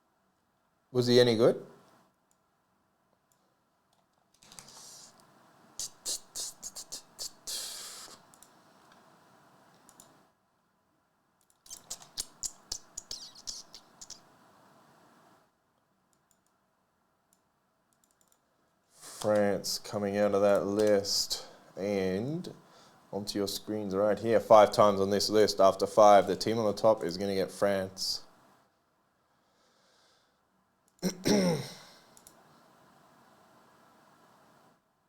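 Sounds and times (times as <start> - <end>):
mouse and keyboard clicks: 9.8 - 10.2, 11.4 - 14.2.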